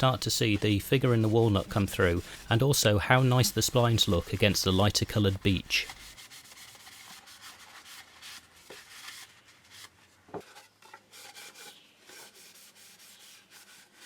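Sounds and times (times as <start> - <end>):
cloth wiping wood: 0.0 - 9.7.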